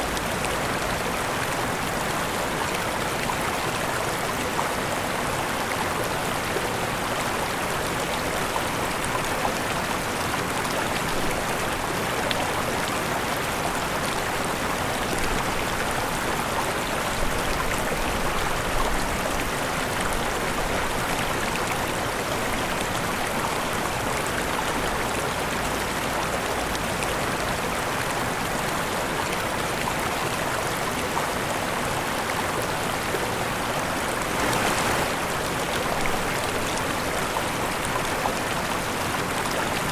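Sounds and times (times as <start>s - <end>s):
waterfall rushing: 27.6s - 39.9s.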